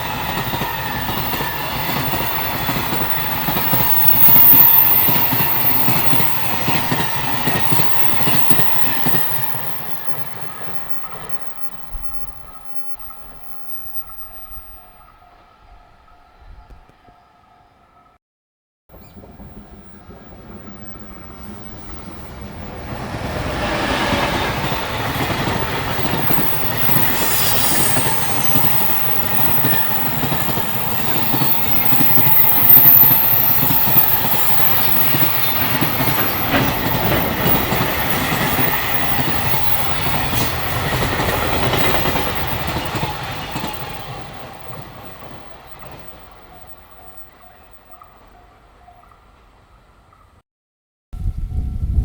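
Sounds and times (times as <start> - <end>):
freight train wheels clattering: 23.1 - 46.5.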